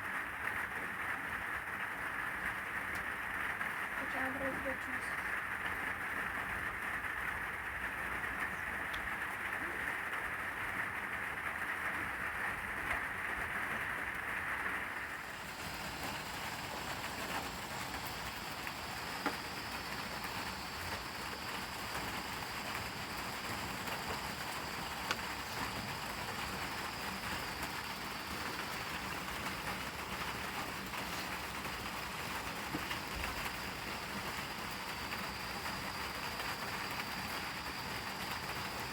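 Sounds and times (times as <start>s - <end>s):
heavy rain falling: 0.0s - 38.9s
sharp ticks of raindrops: 0.0s - 38.9s.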